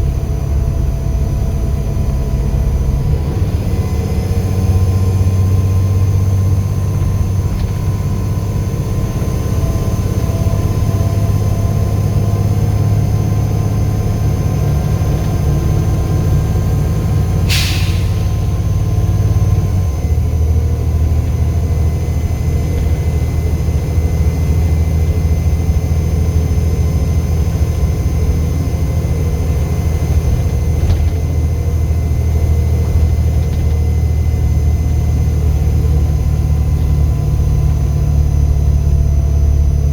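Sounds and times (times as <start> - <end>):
bus diesel engine with turbo whistle: 0.0 - 39.9
short air hiss: 17.5 - 18.8.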